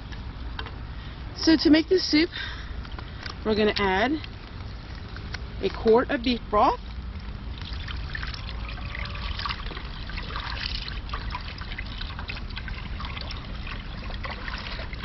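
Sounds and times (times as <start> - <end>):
broth pouring into a pot: 7.2 - 15.0.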